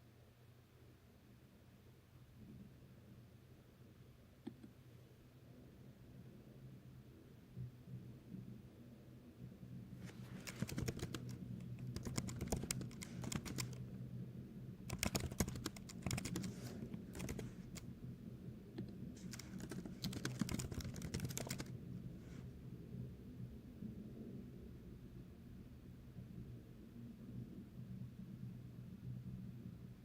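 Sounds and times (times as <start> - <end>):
steady low hum: 0.9 - 30.0
typing on computer keyboard: 10.1 - 13.8, 14.9 - 17.8, 19.2 - 21.7.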